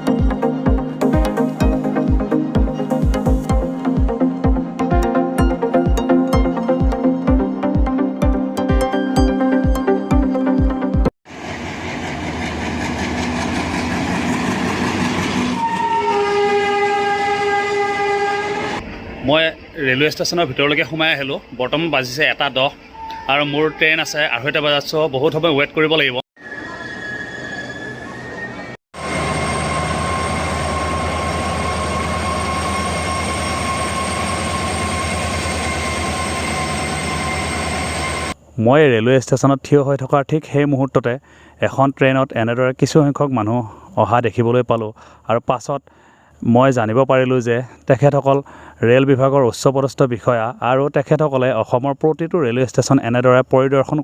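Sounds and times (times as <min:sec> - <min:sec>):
electronic music with a beat: 0:00.0 - 0:11.1
train running through station: 0:11.3 - 0:24.8, 0:26.4 - 0:38.5
locomotive horn blast: 0:15.0 - 0:18.8, 0:22.9 - 0:24.6.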